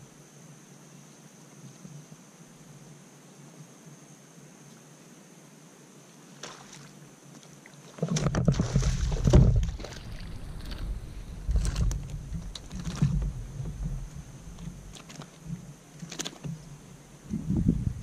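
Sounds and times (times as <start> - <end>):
knocks and rubbing on kayak: 8.0 - 16.7
deep rumble: 8.3 - 15.7, 16.6 - 18.0.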